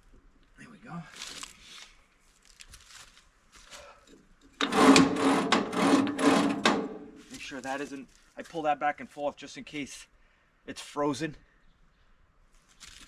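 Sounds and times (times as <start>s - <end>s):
metal grating squeal: 4.6s - 7.2s.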